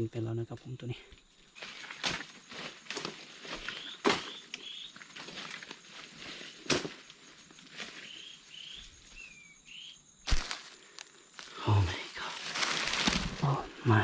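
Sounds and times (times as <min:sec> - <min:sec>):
footsteps crunching through leaves: 0:01.5 - 0:08.9, 0:10.3 - 0:14.0
bird rising chirps: 0:03.6 - 0:06.2, 0:07.2 - 0:10.1.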